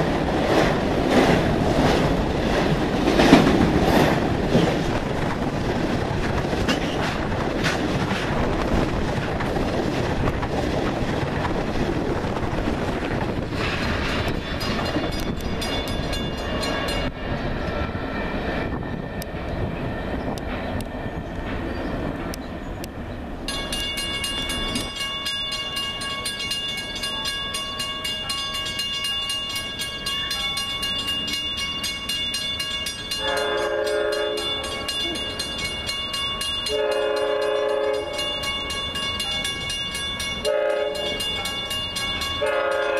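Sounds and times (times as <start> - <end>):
train rumbling: 0.0 - 42.9
crossing bell ringing: 13.6 - 42.9
train horn blasts: 33.1 - 35.2, 36.7 - 38.3, 40.4 - 41.4, 42.4 - 42.9.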